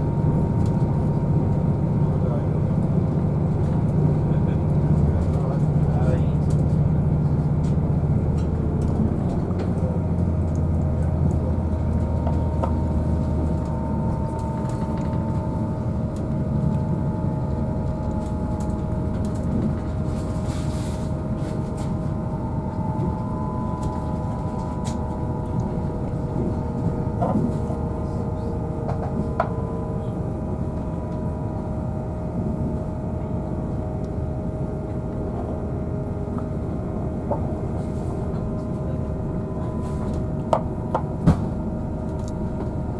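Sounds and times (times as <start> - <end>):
diesel engines droning: 0.0 - 42.9
wheels rumbling on rail: 0.0 - 42.9
steady whining tones: 11.5 - 42.9.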